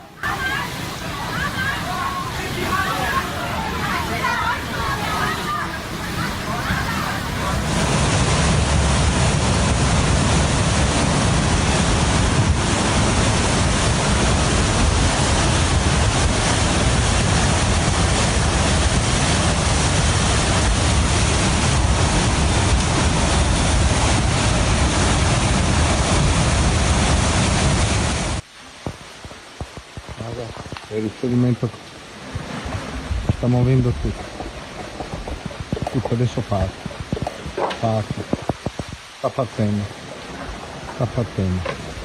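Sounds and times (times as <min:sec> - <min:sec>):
rough water: 0:00.0 - 0:42.0
wind buffeting microphone: 0:00.0 - 0:42.0
wind roaring: 0:00.0 - 0:42.0.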